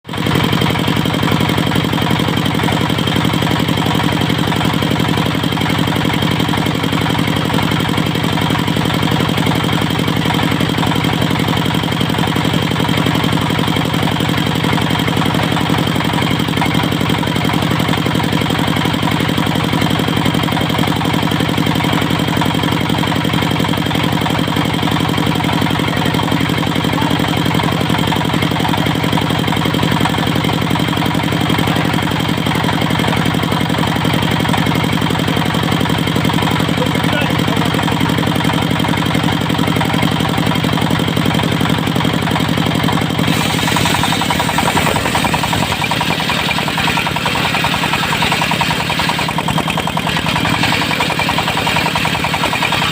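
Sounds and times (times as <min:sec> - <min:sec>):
diesel engine running: 0:00.1 - 0:52.9.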